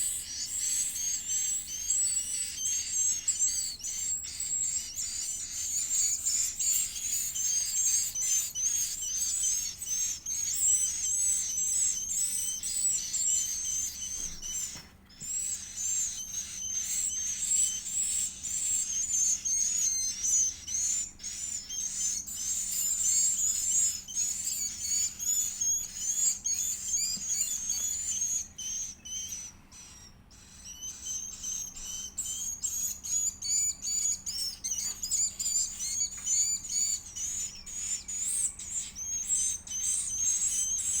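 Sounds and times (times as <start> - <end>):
bird chick begging chirps: 0.0 - 41.0.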